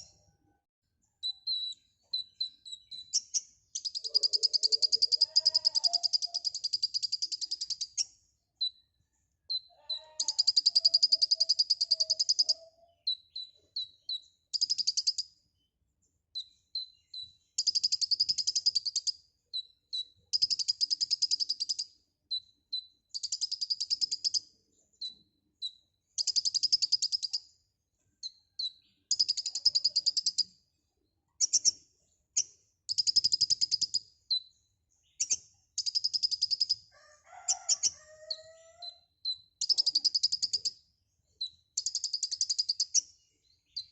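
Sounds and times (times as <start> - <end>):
bird chattering song: 0.0 - 0.2, 1.1 - 8.8, 9.5 - 15.7, 16.4 - 27.5, 28.2 - 30.5, 31.4 - 36.9, 37.6 - 43.9.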